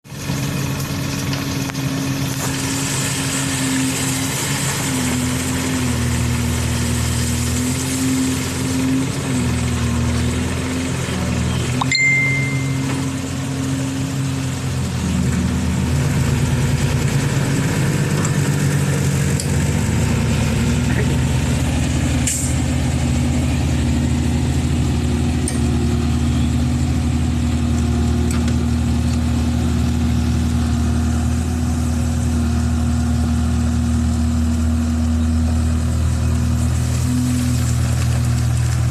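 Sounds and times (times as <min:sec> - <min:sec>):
diesel engine running: 0:00.0 - 0:38.9
brief high-pitched tone: 0:11.8 - 0:13.3.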